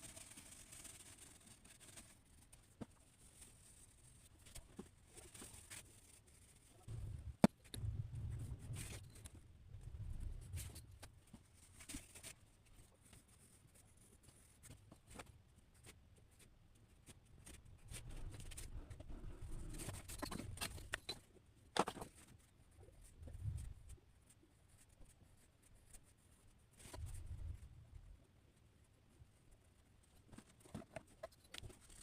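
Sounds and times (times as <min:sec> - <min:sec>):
drawing strokes scratching on paper: 0:23.0 - 0:27.6.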